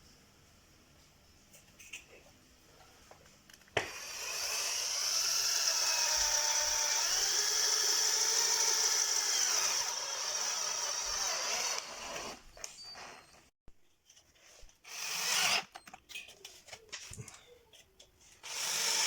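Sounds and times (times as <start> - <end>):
power drill motor whine: 3.9 - 13.2, 14.9 - 15.8, 18.4 - 19.0.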